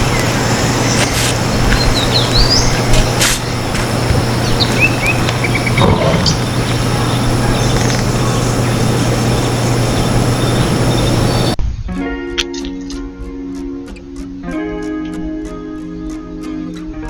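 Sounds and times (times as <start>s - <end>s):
low hum: 0.0s - 11.6s
outdoor hiss: 0.0s - 11.6s
small birds chirping: 0.0s - 11.6s.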